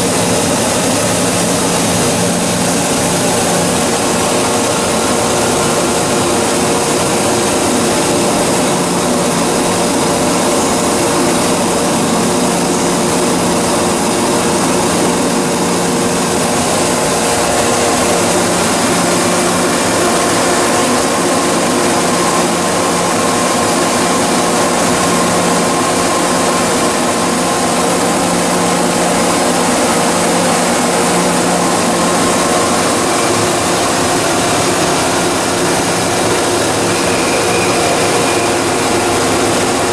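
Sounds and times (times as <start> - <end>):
held tones: 35.9 - 39.8.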